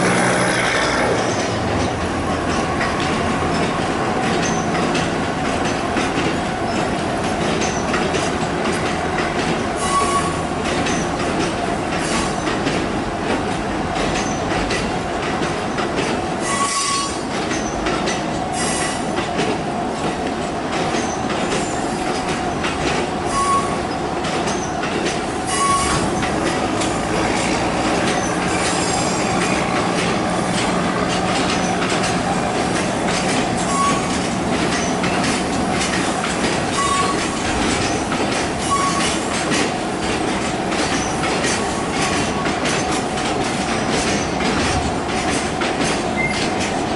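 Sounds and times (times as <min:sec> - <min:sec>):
high wheel squeals: 0:25.5 - 0:26.2, 0:33.6 - 0:35.0, 0:38.6 - 0:39.2.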